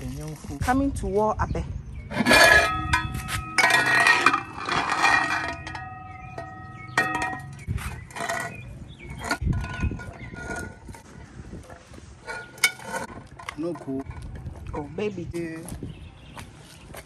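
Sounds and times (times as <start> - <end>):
metal pots clanking together: 2.1 - 14.1.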